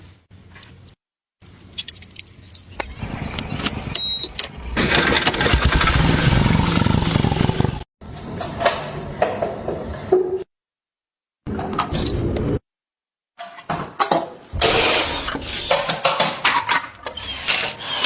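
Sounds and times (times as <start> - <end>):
motorcycle engine starting: 4.5 - 7.8
motorcycle engine running rough: 4.8 - 7.8.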